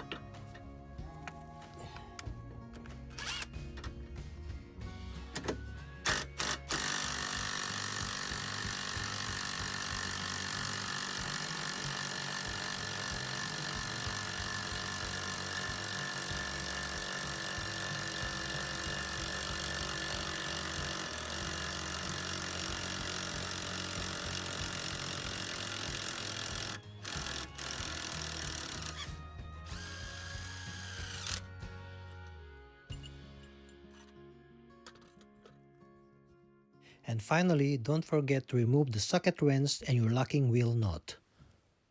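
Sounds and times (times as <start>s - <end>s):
power driver winding jack screw: 3.1s - 3.6s, 5.4s - 31.5s.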